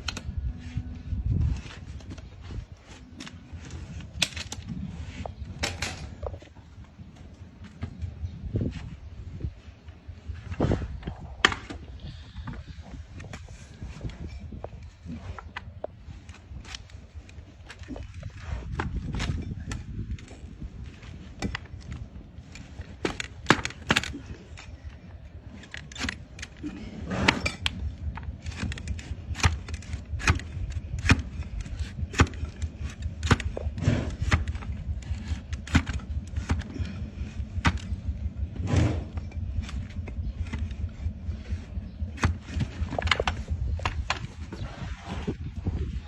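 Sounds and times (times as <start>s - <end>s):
steady low rumble: 0.0s - 46.0s
cutting tool cutting hoof: 12.6s - 45.4s.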